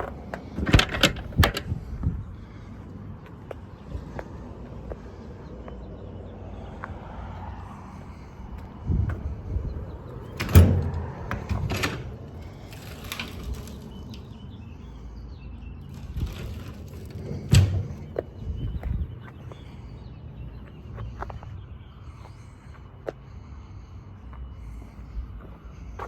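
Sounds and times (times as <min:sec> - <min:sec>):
metal clicks and rattles: 0:00.0 - 0:01.8, 0:10.2 - 0:14.4, 0:15.9 - 0:18.2
metal doors clanking: 0:00.0 - 0:01.9, 0:09.8 - 0:14.5, 0:15.8 - 0:18.3.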